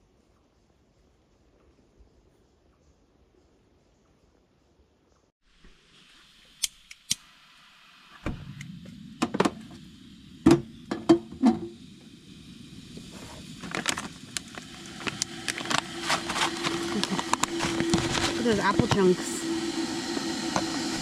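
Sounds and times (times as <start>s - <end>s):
low rushing noise: 7.8s - 21.0s.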